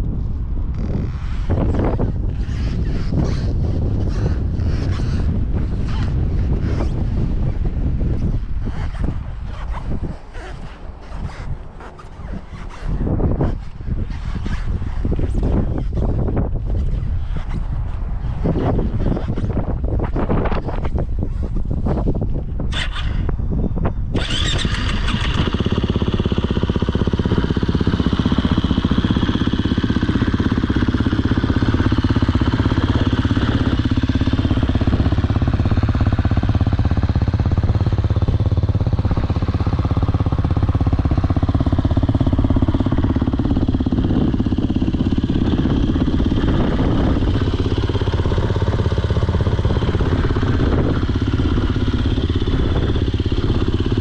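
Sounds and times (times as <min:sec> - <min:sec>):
motorcycle engine starting and idling: 0:22.7 - 0:23.4, 0:24.1 - 0:54.0.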